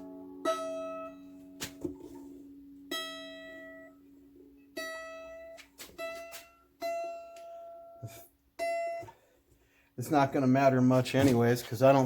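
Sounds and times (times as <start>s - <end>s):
mandolin string plucked: 0.0s - 9.2s.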